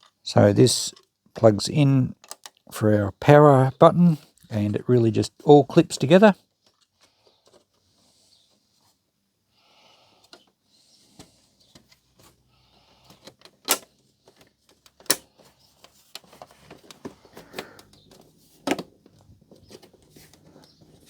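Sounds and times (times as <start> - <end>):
plastic parts snapping: 2.2 - 2.6, 13.1 - 20.0
small plastic clicks: 2.2 - 2.7.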